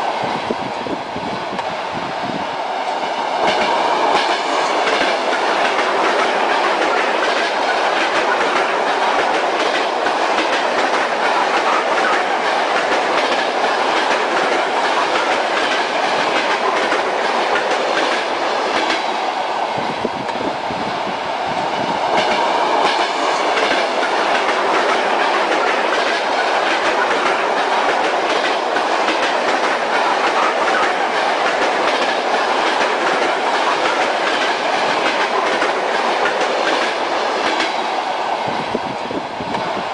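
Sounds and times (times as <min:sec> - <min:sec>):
train rumbling: 0:00.0 - 0:39.9
wheels clacking over rail joints: 0:03.4 - 0:19.1, 0:22.1 - 0:38.0.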